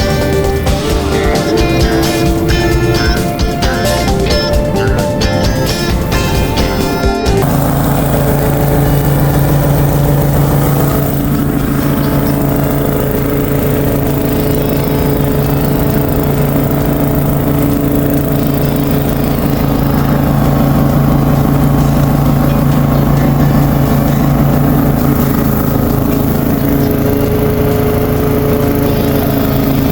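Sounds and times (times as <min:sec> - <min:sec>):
small petrol engine running: 0:00.0 - 0:29.9.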